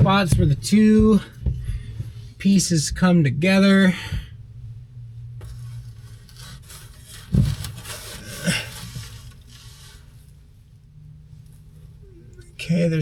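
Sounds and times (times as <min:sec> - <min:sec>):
heavy thump: 0:00.0 - 0:04.8, 0:07.1 - 0:09.1
panels rubbing and scraping: 0:05.2 - 0:10.4.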